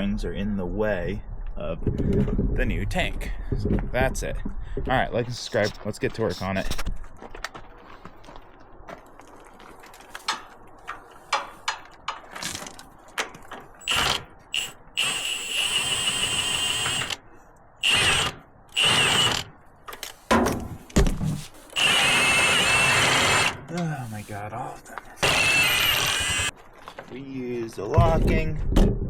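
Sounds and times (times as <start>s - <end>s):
cordless drill spinning: 13.8s - 17.2s, 17.8s - 19.5s, 21.7s - 23.6s, 25.2s - 26.5s.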